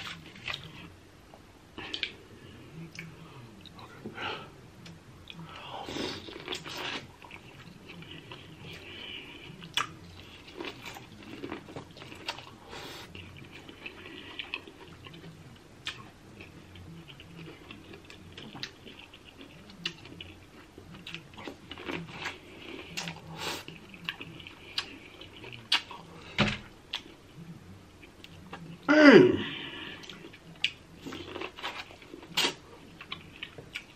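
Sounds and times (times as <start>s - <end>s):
chewing and mouth sounds: 4.8s - 26.1s, 30.0s - 33.9s.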